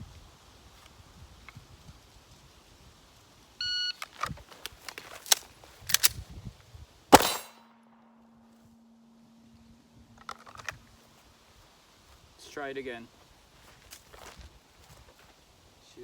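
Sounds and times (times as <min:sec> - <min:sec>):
rapid pistol shots: 0:07.1 - 0:08.0
steel targets ringing: 0:07.1 - 0:09.6.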